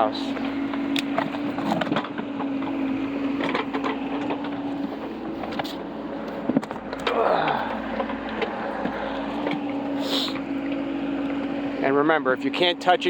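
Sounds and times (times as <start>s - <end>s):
excavator engine humming: 0.0s - 13.0s
bucket clanking and knocking: 0.3s - 4.7s.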